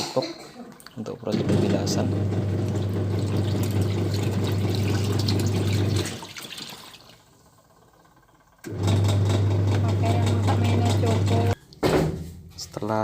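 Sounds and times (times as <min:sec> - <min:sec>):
washing machine motor hum: 0:01.0 - 0:11.7
water churning in tub: 0:01.3 - 0:07.4.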